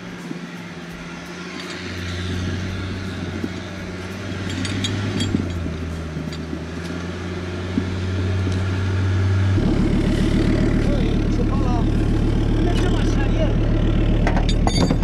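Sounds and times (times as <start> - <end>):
off-road engine droning: 0.0 - 15.0.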